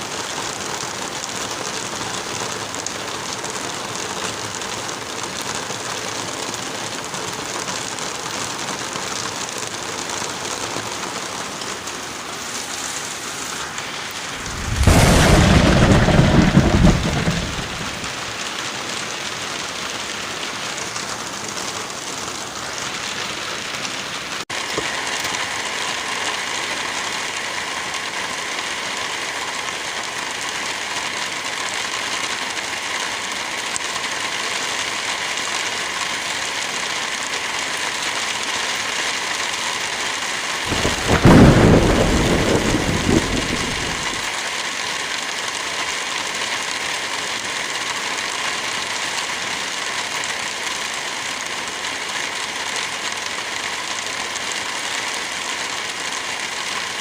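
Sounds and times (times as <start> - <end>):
heavy rain: 0.0 - 57.0
thunder clap rumbling: 14.2 - 18.5, 40.7 - 44.3.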